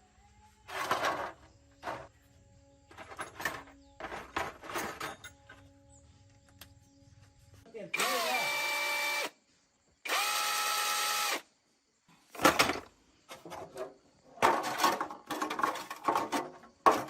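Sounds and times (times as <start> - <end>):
metal knocks and rattles: 2.9 - 5.6
power tool motor whining: 8.0 - 9.3, 10.1 - 11.4.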